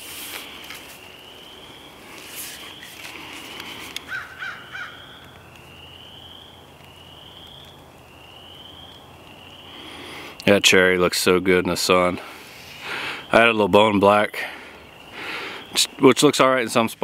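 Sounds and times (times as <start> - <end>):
rustling: 0.0 - 1.2, 1.9 - 5.6
rising high bird call: 0.0 - 10.0
birds calling: 0.0 - 17.0.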